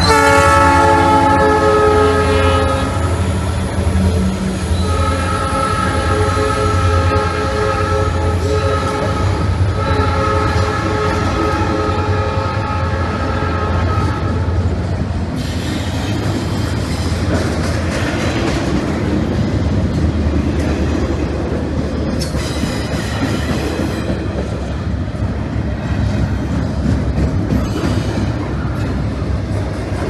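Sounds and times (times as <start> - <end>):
freight train rumble: 0.0 - 30.0
wheel clatter over rail joints: 26.0 - 30.0.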